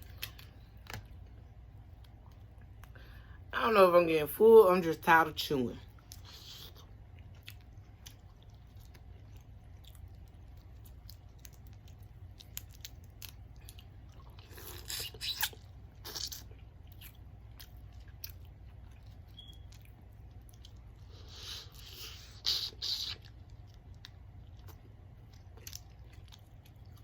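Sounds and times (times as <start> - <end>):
wet mouth clicks chewing: 6.1 - 27.0.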